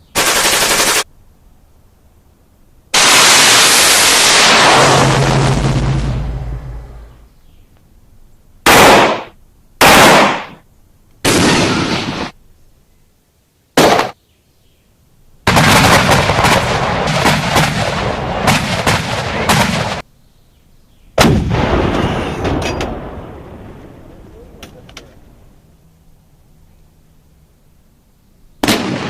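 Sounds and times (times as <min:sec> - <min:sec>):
rapid automatic gunfire: 0:00.2 - 0:01.0
gunshots: 0:08.7 - 0:10.6, 0:11.2 - 0:12.4, 0:13.8 - 0:14.2, 0:15.5 - 0:20.0, 0:21.2 - 0:23.3, 0:28.6 - 0:29.0.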